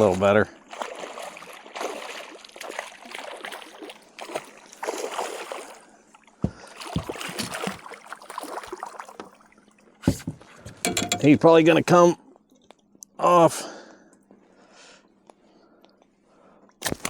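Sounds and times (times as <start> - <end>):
rushing water: 0.0 - 5.8
dull knocks on boat: 6.4 - 7.6, 10.0 - 11.4.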